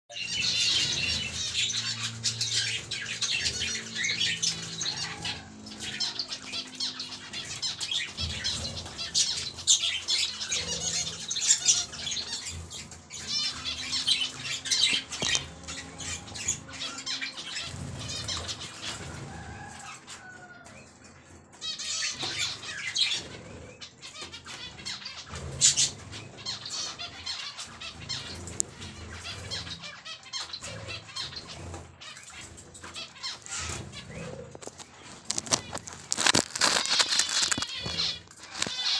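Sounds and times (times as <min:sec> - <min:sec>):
birds chirping and squawking: 0:00.1 - 0:38.9
wings flapping: 0:33.2 - 0:38.9.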